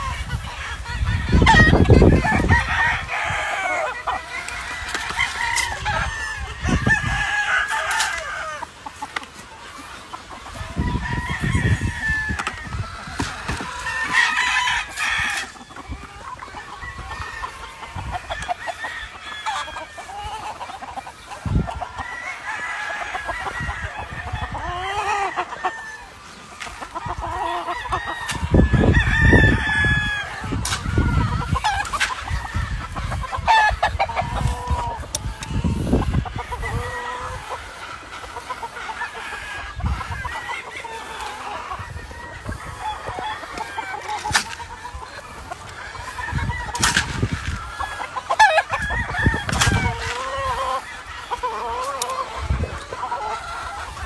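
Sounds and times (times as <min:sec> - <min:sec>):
chickens clucking: 0:00.0 - 0:54.0
roosters crowing: 0:00.0 - 0:54.0.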